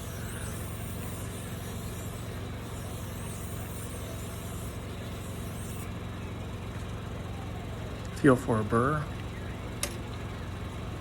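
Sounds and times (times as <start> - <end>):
steel hissing on stone: 0.0 - 5.9
sharpener motor hum: 0.0 - 6.0.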